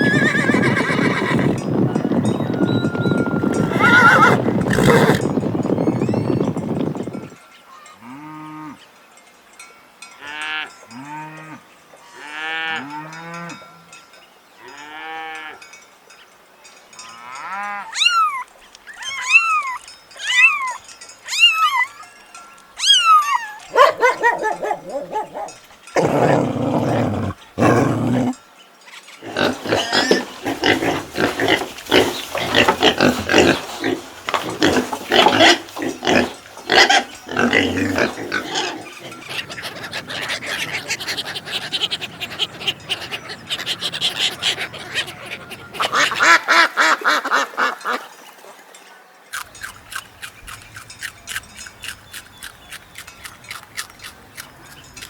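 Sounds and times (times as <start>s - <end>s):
farm animal calls: 0.0s - 5.3s, 22.8s - 28.4s, 29.2s - 48.0s.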